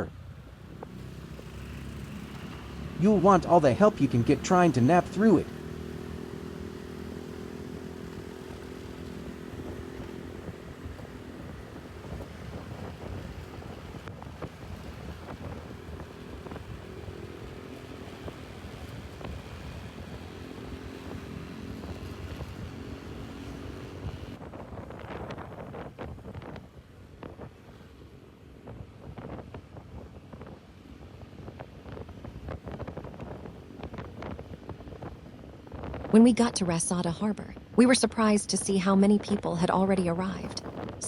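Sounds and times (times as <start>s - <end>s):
engine humming: 0.4s - 24.5s
wind on microphone: 9.6s - 17.2s, 18.1s - 36.5s, 40.4s - 41.0s.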